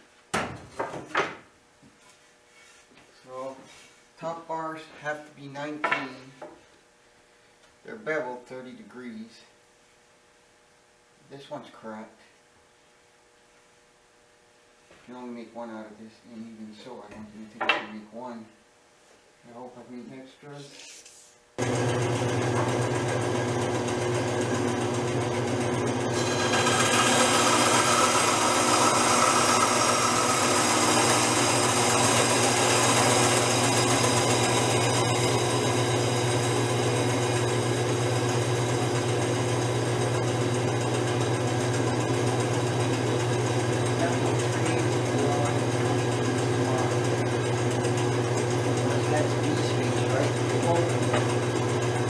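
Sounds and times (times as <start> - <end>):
power tool cutting wood: 21.6 - 52.0.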